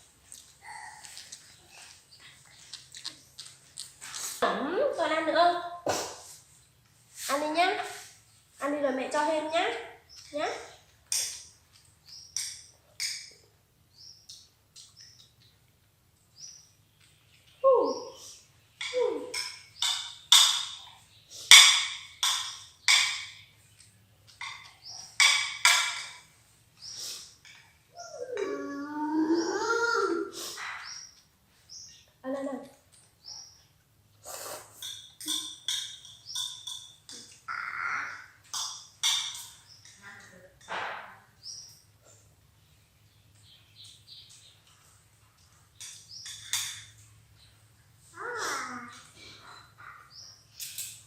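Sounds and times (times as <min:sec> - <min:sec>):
wet chewing noises: 0:00.2 - 0:04.4
monkey clicking mouth sounds: 0:02.6 - 0:04.0.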